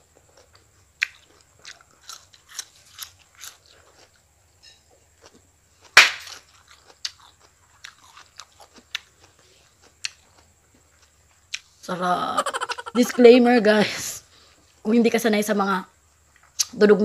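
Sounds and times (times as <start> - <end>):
crunchy chewing of raw vegetables: 0.0 - 13.2.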